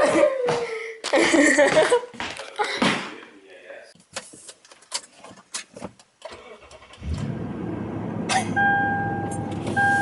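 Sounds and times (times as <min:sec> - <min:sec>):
dashboard warning chime beeps: 0:08.6 - 0:10.0.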